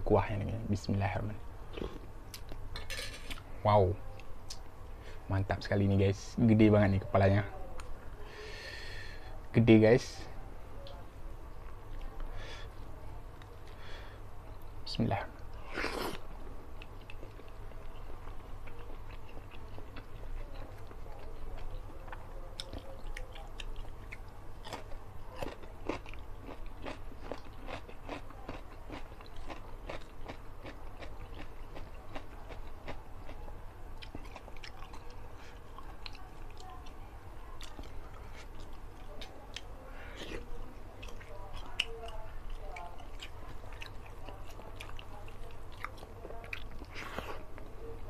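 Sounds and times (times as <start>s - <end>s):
person chewing food: 1.7s - 3.5s, 15.5s - 33.4s, 34.0s - 37.0s, 37.6s - 47.9s.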